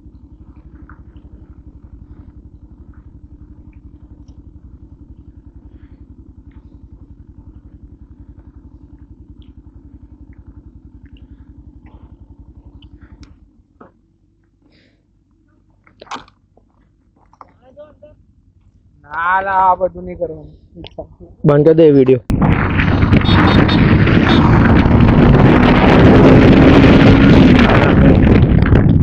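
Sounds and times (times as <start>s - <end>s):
motorcycle engine idling: 0.0s - 21.5s.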